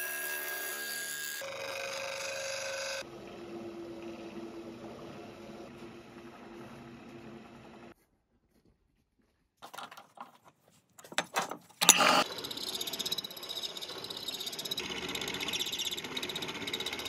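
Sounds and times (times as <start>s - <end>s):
power tool buzzing: 0.0s - 3.1s, 11.8s - 17.0s
clicks and knocks: 11.0s - 12.0s.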